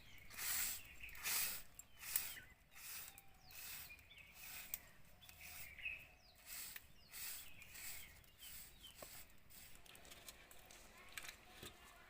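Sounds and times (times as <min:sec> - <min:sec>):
faint bird chirps: 0:00.0 - 0:09.2.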